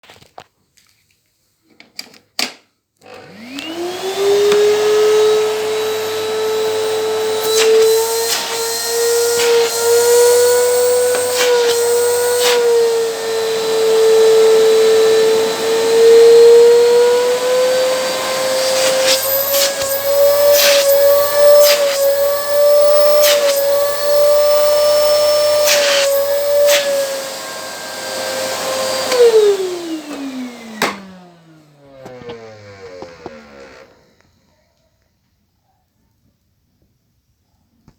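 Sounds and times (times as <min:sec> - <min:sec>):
vacuum cleaner motor whining: 0:03.0 - 0:34.6
vacuum cleaner switch click: 0:30.0 - 0:31.1.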